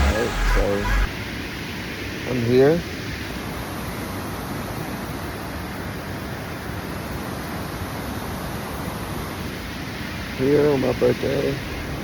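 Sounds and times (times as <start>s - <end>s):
steady rushing noise: 0.0s - 2.6s.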